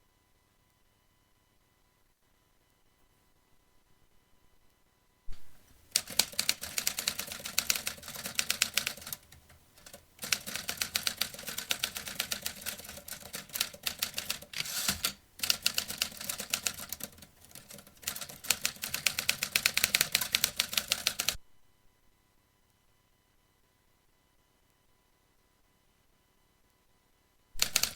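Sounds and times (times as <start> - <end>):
typewriter keystrokes: 5.3 - 21.4, 27.6 - 27.9.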